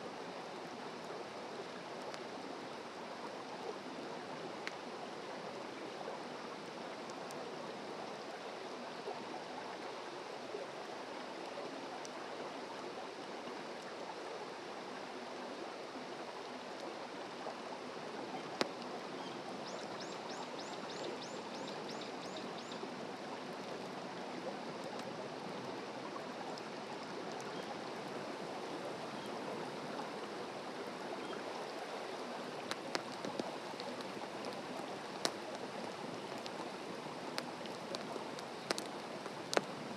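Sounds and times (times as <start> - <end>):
fire crackling pops: 32.6 - 39.9.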